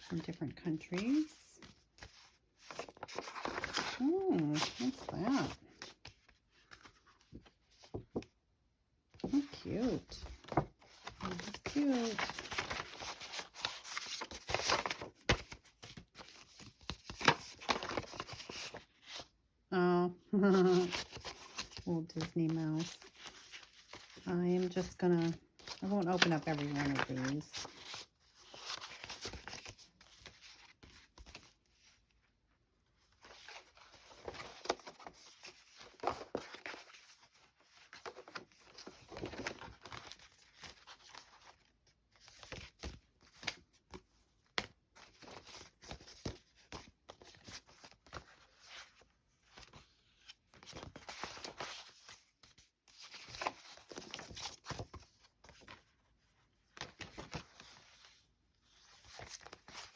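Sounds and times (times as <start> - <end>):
paper cards rustling and crinkling: 0.0 - 8.4, 9.2 - 19.4, 20.4 - 32.2, 32.8 - 59.9.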